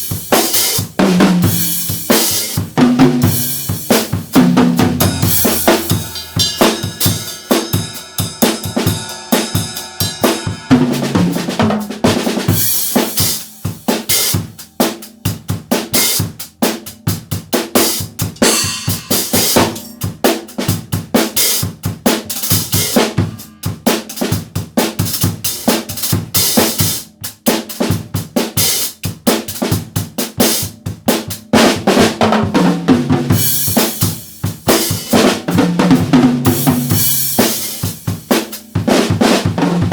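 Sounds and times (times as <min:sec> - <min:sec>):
bass drum: 0:01.2 - 0:14.6, 0:18.0 - 0:20.4
cymbals crashing: 0:05.0 - 0:11.4, 0:18.4 - 0:20.4.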